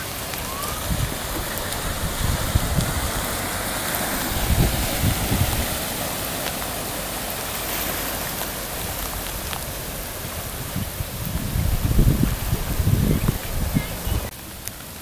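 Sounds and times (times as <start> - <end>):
low bumps: 0.0 - 14.3
rain: 0.0 - 15.0
running floodwater: 0.0 - 15.0.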